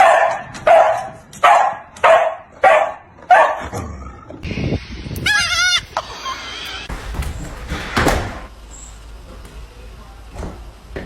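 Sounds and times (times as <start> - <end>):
dog barking: 0.0 - 3.7.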